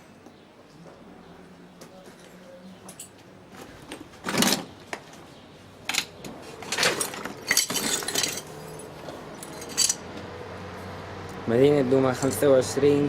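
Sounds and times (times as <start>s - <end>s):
debris clattering and clinking: 5.9s - 10.0s
scrapes of rubble: 6.6s - 10.0s.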